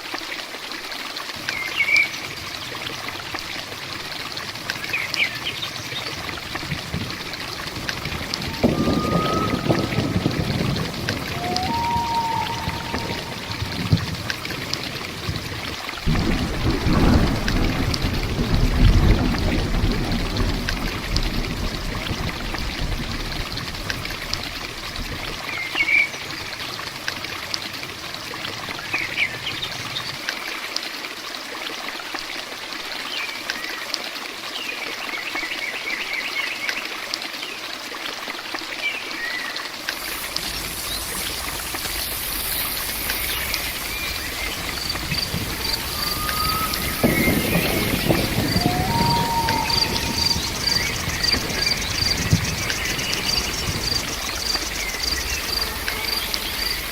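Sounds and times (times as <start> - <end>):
water trickling: 0.0 - 35.7, 36.6 - 56.9
steady rain: 0.0 - 56.9
thunder rumble: 2.2 - 30.2, 39.8 - 56.9
high insect hiss: 4.8 - 15.5, 39.8 - 56.9
crickets chirping: 4.9 - 15.5, 39.8 - 56.9
birds chirping: 7.5 - 14.1, 40.0 - 56.9.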